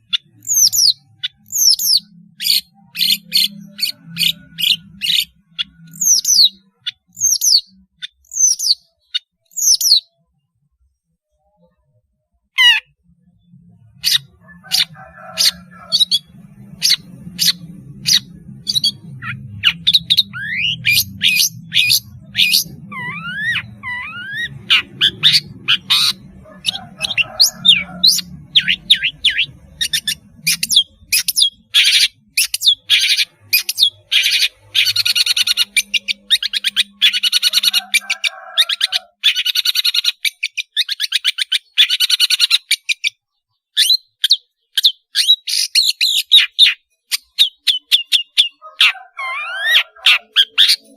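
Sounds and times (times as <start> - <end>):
bird chirping and trilling: 0.0 - 10.3, 12.5 - 50.9.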